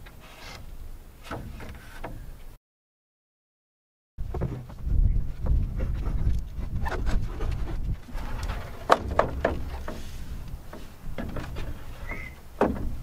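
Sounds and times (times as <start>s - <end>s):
wooden boards knocking: 6.9s - 13.0s.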